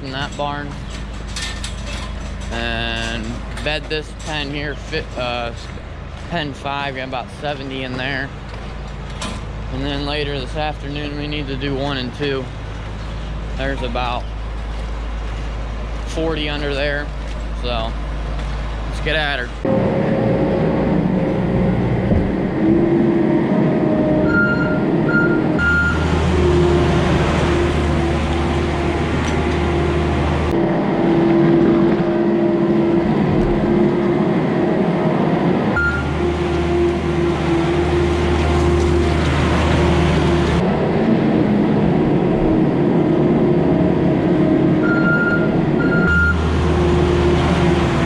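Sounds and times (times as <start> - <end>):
skid loader engine rumbling: 0.0 - 48.0
backup alarm beeps: 24.2 - 26.0, 35.8 - 36.1, 44.8 - 46.4.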